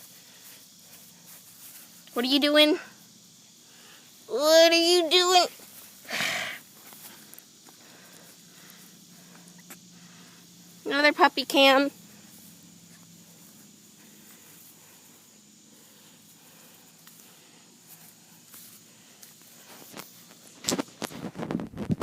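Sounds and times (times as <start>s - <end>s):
faint background noise: 0.0s - 22.0s
rustles and knocks on microphone: 20.6s - 22.0s.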